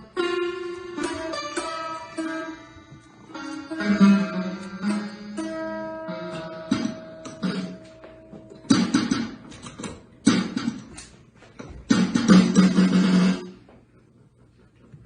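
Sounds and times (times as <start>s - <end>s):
string instrument chords strummed: 0.0s - 9.5s.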